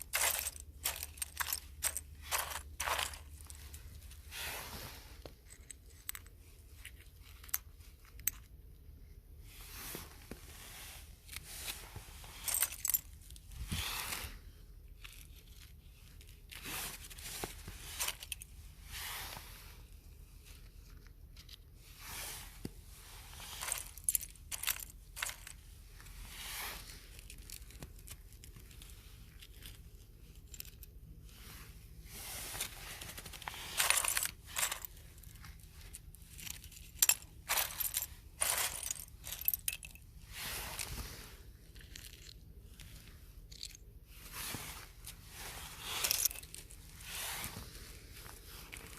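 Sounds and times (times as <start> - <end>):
scratchy rustles: 0.0 - 6.3, 23.1 - 29.8, 31.3 - 43.0, 44.2 - 48.9.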